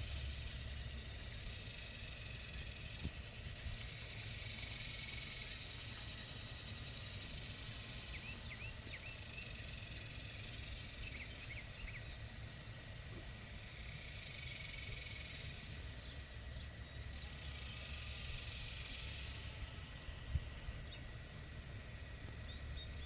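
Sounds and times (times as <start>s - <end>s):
insects buzzing: 0.0s - 23.0s.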